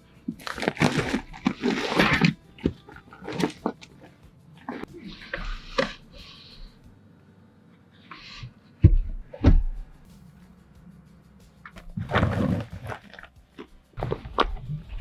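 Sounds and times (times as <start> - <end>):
handling rustling and knocks: 11.7 - 15.0.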